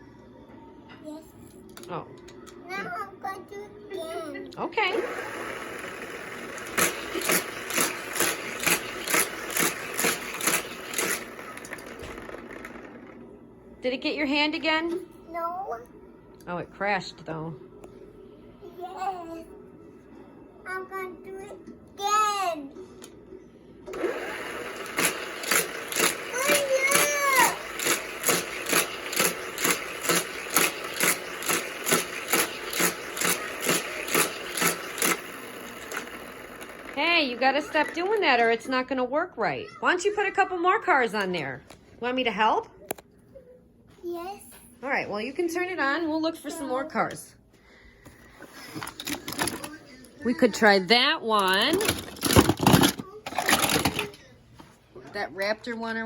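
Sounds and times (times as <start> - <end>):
toy track booster whirring: 4.9 - 13.2, 23.9 - 38.4, 48.8 - 49.8, 51.4 - 54.2
toy car clacking through booster: 5.0 - 13.2, 24.0 - 37.0.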